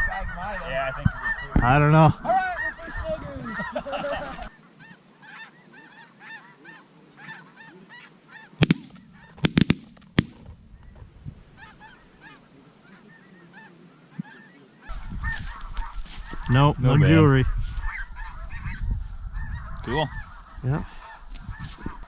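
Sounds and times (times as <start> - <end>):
geese honking: 0.0 - 9.7, 10.3 - 22.0
shotgun shots: 8.6 - 10.6.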